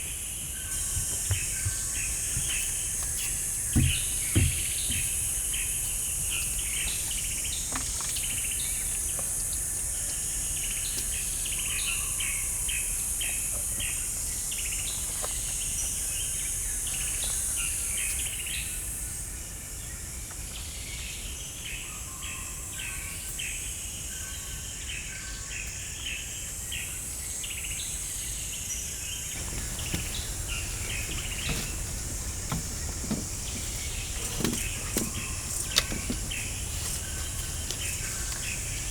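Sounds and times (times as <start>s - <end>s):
bird chirps and calls: 29.4s - 38.9s
low background rumble: 29.4s - 38.9s.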